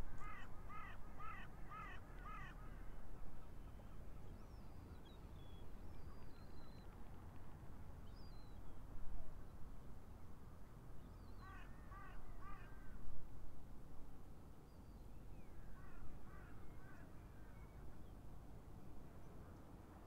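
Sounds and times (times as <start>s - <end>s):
wild birds calling: 0.1s - 2.9s.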